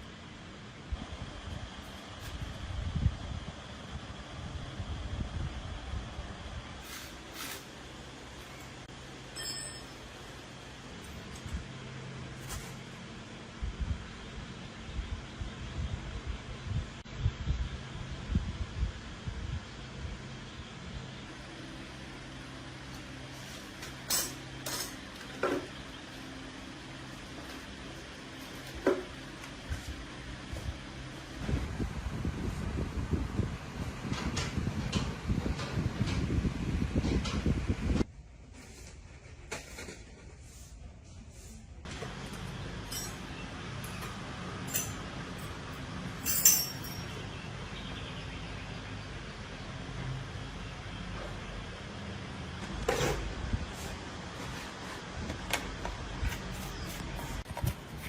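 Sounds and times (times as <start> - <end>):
low mechanical hum: 0.0 - 58.0
sharp metallic clinks: 9.3 - 10.2, 42.8 - 43.4, 44.7 - 45.6, 46.2 - 47.3
hard objects clinking: 46.2 - 47.2.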